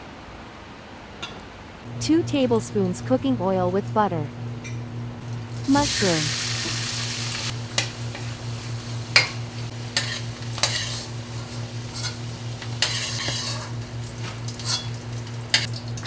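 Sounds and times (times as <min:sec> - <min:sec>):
steady low hum: 0:01.8 - 0:16.0
mushrooms frying in oil: 0:05.2 - 0:16.0
utensil scraping a pan: 0:09.0 - 0:15.7.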